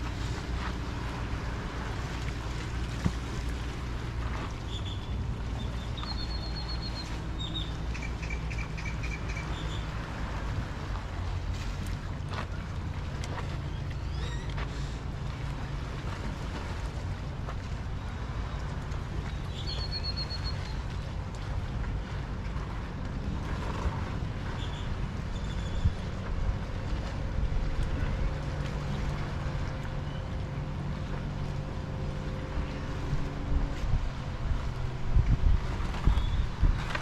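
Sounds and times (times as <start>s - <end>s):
low rumble: 0.0s - 6.0s, 20.8s - 37.0s
wind: 0.0s - 37.0s.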